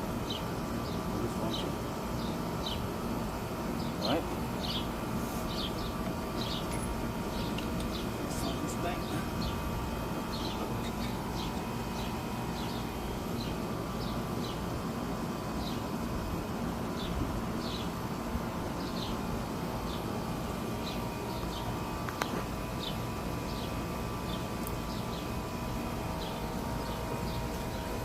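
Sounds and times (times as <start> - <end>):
small bird chirping: 10.3 - 14.6.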